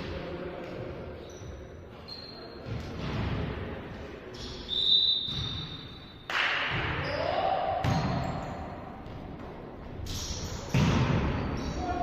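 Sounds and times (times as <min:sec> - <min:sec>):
echoing sports hall noise: 0:00.0 - 0:12.0
volleyball thudding and bouncing: 0:06.3 - 0:07.1, 0:10.7 - 0:11.4.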